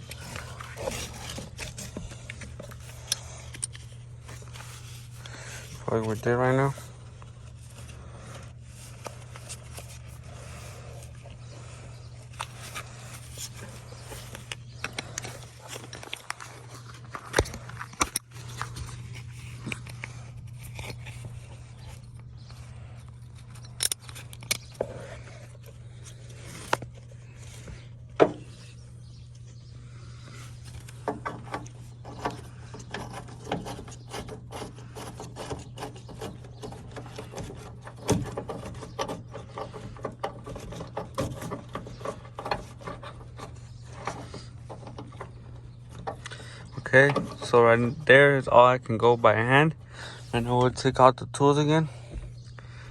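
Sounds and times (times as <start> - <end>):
steady low hum: 0.0 - 52.9
screw turning with metal clicks: 23.4 - 24.9.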